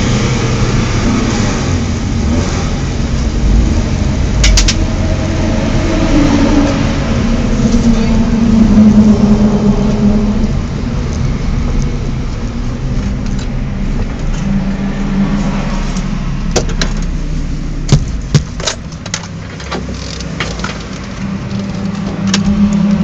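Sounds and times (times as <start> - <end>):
car engine running at low revs: 0.0 - 23.0
sharp clicks and knocks: 4.4 - 4.9, 17.9 - 23.0.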